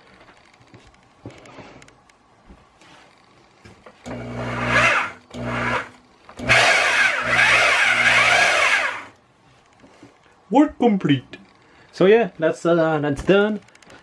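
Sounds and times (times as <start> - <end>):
bandsaw motor running: 4.1 - 9.2.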